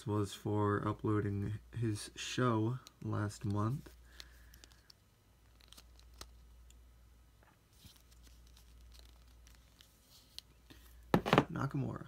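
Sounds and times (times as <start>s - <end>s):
packaging rustling: 7.7s - 11.4s.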